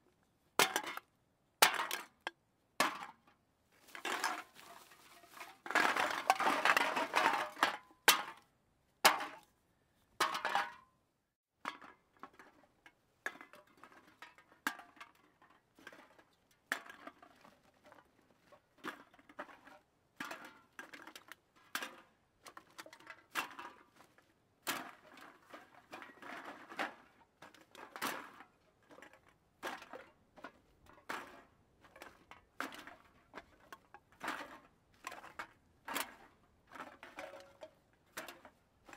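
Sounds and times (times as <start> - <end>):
crash of hard objects: 3.9 - 8.3.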